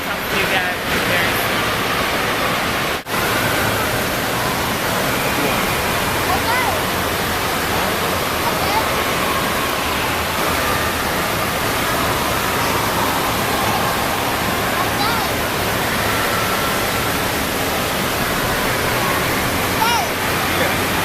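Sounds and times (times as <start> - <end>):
distant voices: 0.0 - 21.0
falling and splashing water: 0.0 - 21.0
people shouting: 19.8 - 20.2.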